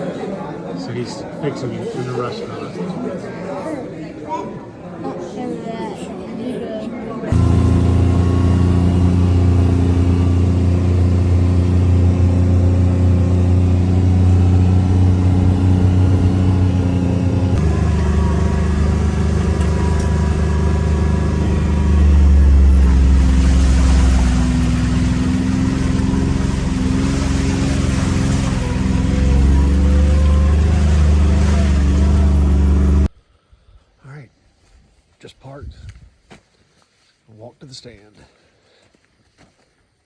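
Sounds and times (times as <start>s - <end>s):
vehicle engine and road noise: 7.3s - 33.1s.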